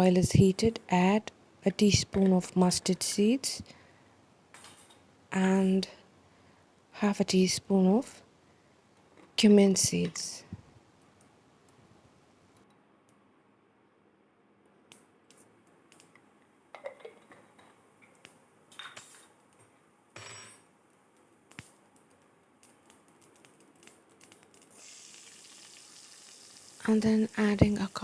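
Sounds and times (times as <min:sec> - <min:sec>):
seeds popping in hot oil: 0:21.5 - 0:28.0
oil sizzling: 0:23.8 - 0:28.0.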